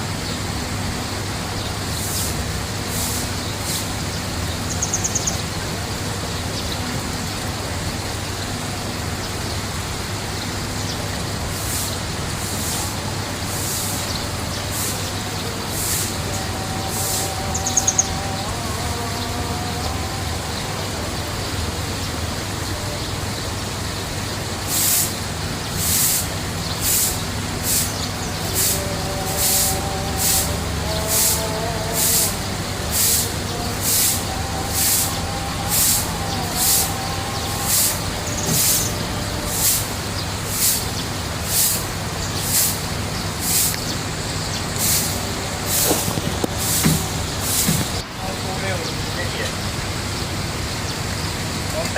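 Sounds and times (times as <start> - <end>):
pump hum: 0.0 - 51.9
running water: 0.0 - 51.9
wavering lower calls: 1.1 - 8.4, 10.7 - 49.4
high chirp: 4.6 - 5.6.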